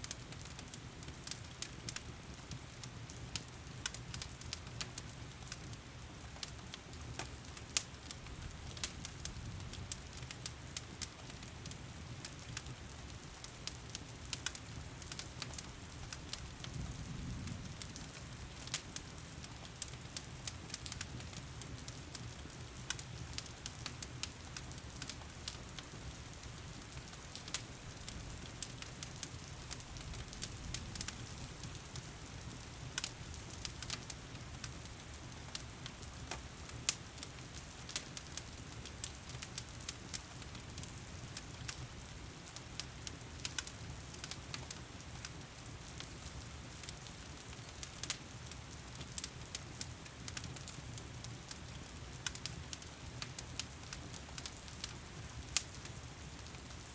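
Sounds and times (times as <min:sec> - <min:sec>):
wood fire crackling and popping: 0:00.0 - 0:56.9.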